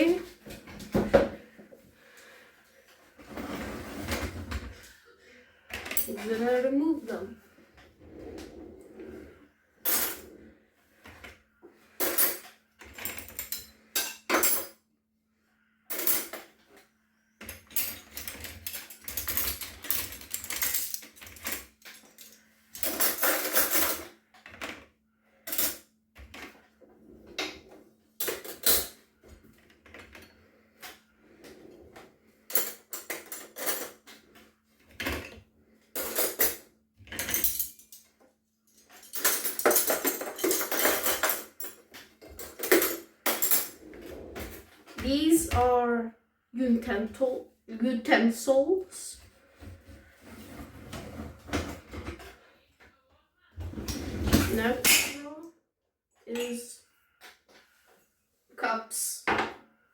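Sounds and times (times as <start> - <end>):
dishes and cutlery clinking: 17.5 - 24.2, 36.0 - 43.8.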